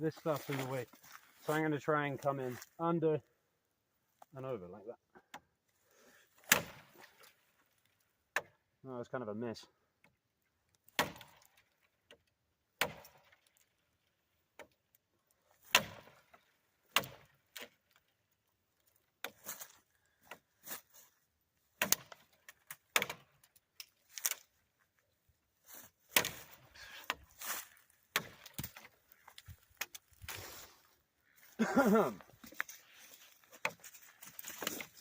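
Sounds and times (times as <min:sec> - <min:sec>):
knife chopping into branches: 0:06.4 - 0:07.1, 0:10.9 - 0:11.5, 0:12.8 - 0:13.4, 0:15.6 - 0:16.3, 0:16.9 - 0:17.7, 0:21.8 - 0:23.3, 0:26.1 - 0:28.9.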